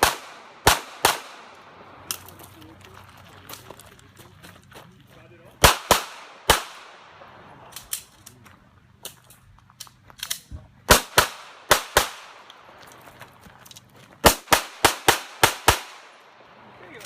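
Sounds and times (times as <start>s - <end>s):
pistol shots: 0.0s - 2.3s, 5.6s - 8.1s, 10.9s - 12.7s, 14.2s - 16.4s.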